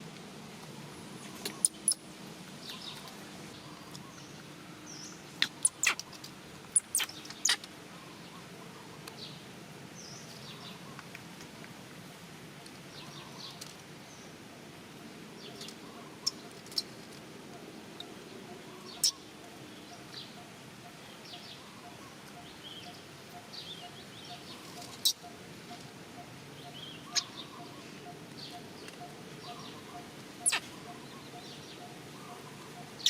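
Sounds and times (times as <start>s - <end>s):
high-pitched animal calls: 19.9s - 33.0s.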